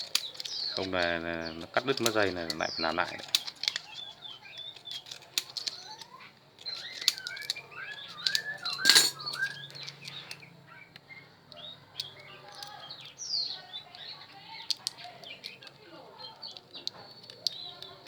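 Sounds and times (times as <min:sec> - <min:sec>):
small birds chirping: 0:00.0 - 0:18.0
metal hand tools clinking: 0:06.6 - 0:10.1.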